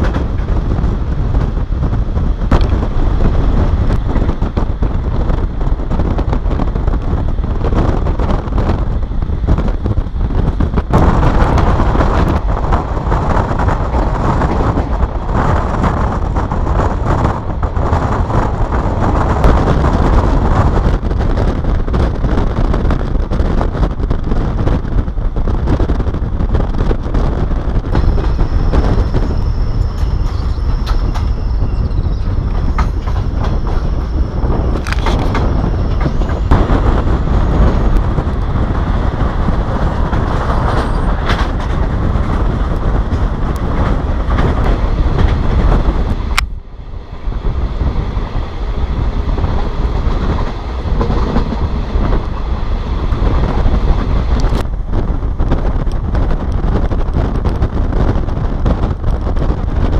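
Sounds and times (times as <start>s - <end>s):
train wheels and wind rumble: 0.0s - 59.9s
wheel clicks over rail joints: 27.8s - 46.4s
thin high whine: 27.9s - 37.9s.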